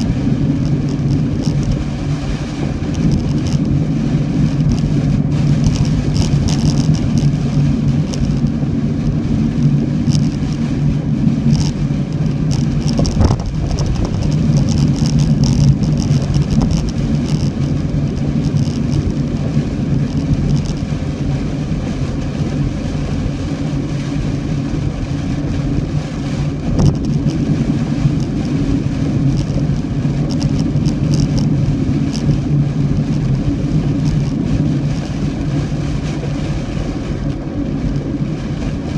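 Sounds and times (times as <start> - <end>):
light ticks: 0.0 - 1.8, 2.8 - 3.8, 4.6 - 4.9, 5.6 - 9.2, 10.0 - 10.6, 11.5 - 21.0, 28.0 - 33.3
car driving rumble: 0.0 - 38.9.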